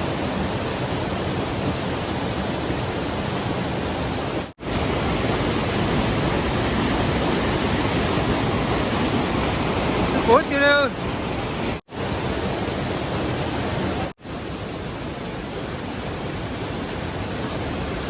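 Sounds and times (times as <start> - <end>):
stream water flowing: 0.0 - 18.0.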